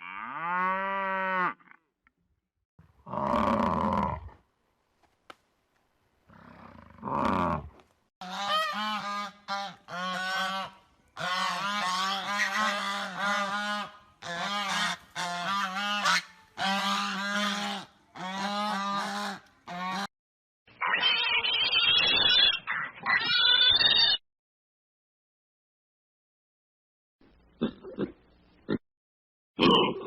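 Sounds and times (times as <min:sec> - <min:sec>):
animal honk-like calls: 0:08.2 - 0:20.1.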